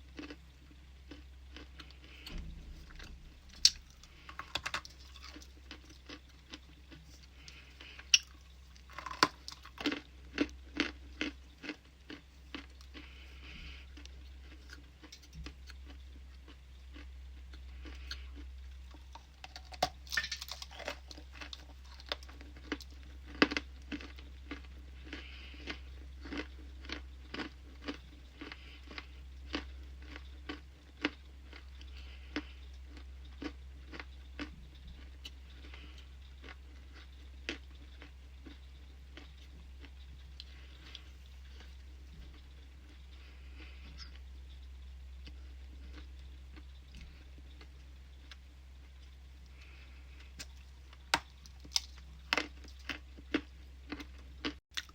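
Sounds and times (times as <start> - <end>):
low hum: 0.0 - 54.4
person crunching ice: 1.1 - 13.8, 18.9 - 29.0, 50.4 - 54.1.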